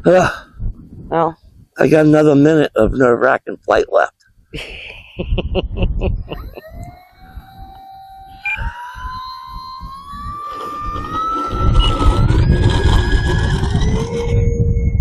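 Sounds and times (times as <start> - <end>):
wind buffeting microphone: 0.0 - 3.1, 5.2 - 15.0
model plane motor whining: 6.4 - 14.6.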